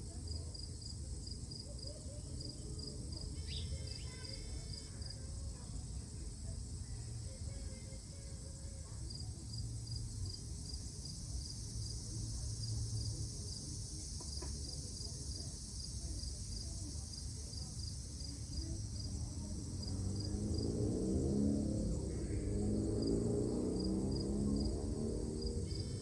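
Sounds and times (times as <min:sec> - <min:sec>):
insects chirping trill: 0:07.0 - 0:26.0
low rumble: 0:18.8 - 0:26.0.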